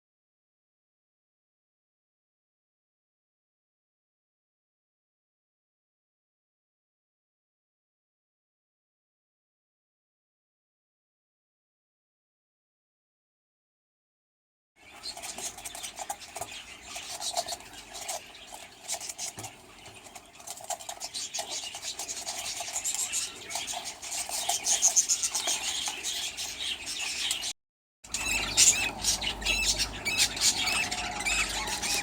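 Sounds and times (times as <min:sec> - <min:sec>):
small birds chattering: 0:14.8 - 0:27.5, 0:28.1 - 0:32.0.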